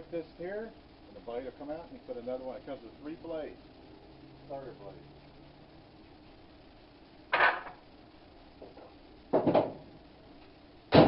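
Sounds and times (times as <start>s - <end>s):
hard objects knocking and clattering: 7.3s - 7.8s, 8.6s - 9.8s.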